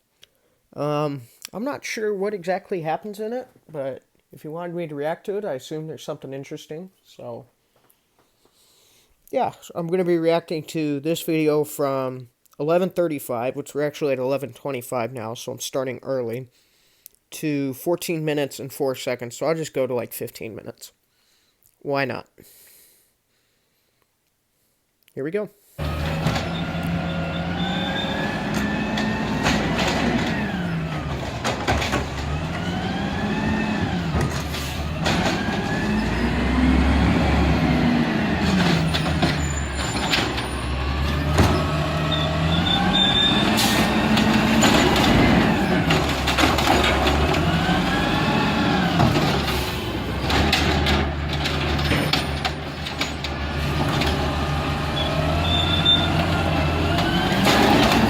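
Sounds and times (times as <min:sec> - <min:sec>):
sharp knocks and clanks: 0:25.8 - 0:36.1, 0:38.4 - 0:41.9, 0:43.4 - 0:54.4, 0:57.0 - 0:58.0
garbage truck engine revving: 0:25.8 - 0:58.0.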